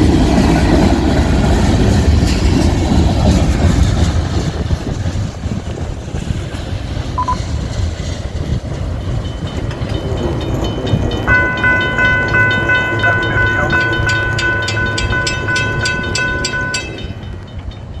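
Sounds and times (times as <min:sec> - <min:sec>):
freight train rumble and wheel clatter: 0:00.0 - 0:18.0
ringing tone with quick clicks: 0:07.2 - 0:07.4.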